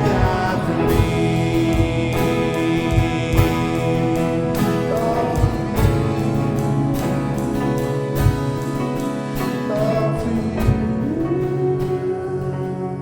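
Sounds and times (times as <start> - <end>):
drum hits: 0.0 - 9.5, 10.6 - 11.1
worship band playing: 0.0 - 13.0.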